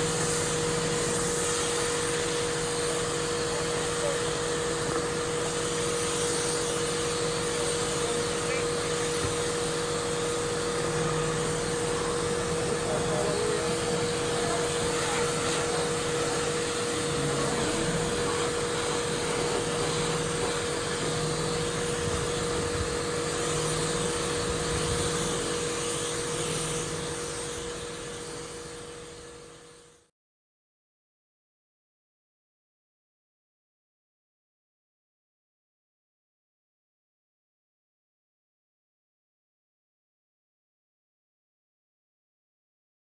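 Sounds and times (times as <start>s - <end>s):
machine humming: 0.0s - 29.6s.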